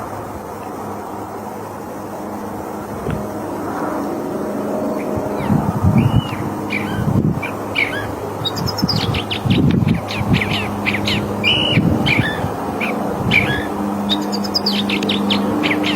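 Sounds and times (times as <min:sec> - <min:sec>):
steady low hum: 0:00.0 - 0:15.9
bird singing varied phrases: 0:05.0 - 0:15.9.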